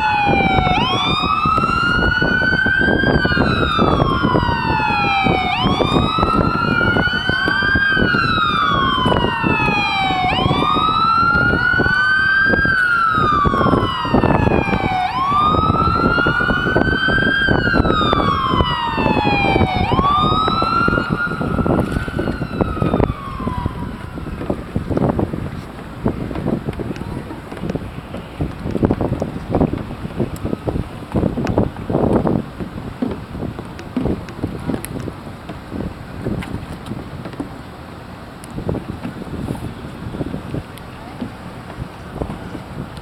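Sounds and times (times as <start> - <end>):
fire siren wailing: 0.0 - 25.4, 27.9 - 32.4
steady low noise: 3.2 - 25.3.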